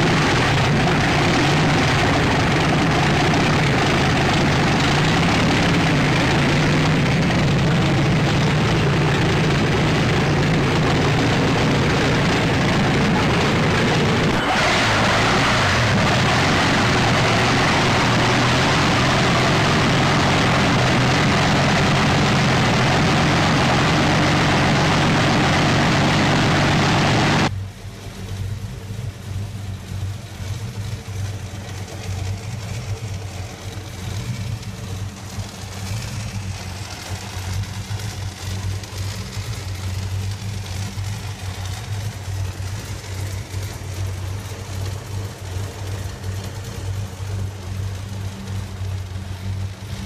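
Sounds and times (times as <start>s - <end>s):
engine idling: 0.0s - 50.0s
racing car engine running loud: 0.0s - 50.0s.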